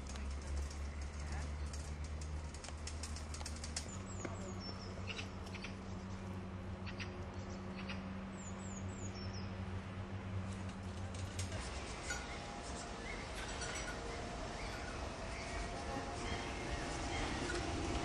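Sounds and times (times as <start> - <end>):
low hum: 3.9 - 18.0.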